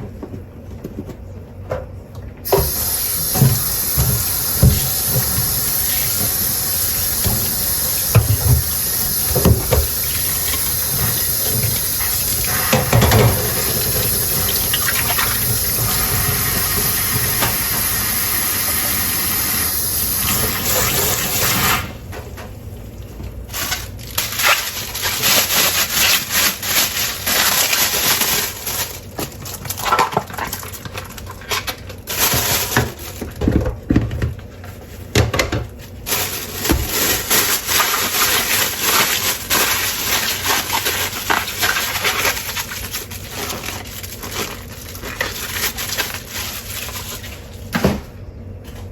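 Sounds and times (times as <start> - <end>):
tap water running into sink: 2.5 - 21.8
water splashing and rinsing: 2.5 - 21.9.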